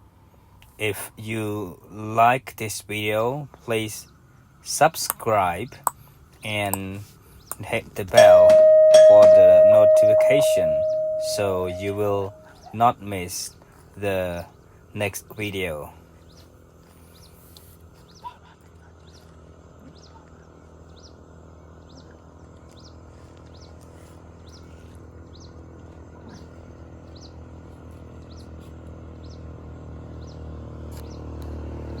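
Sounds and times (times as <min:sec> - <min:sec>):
steady low hum: 0:08.1 - 0:12.5.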